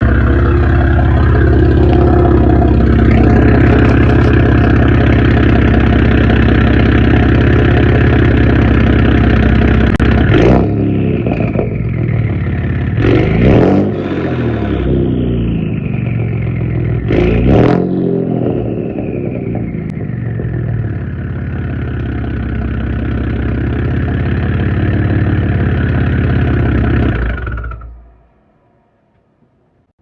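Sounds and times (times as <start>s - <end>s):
engine revving: 0.0s - 21.2s
car exhaust note: 0.0s - 28.1s
engine idling: 0.0s - 28.2s.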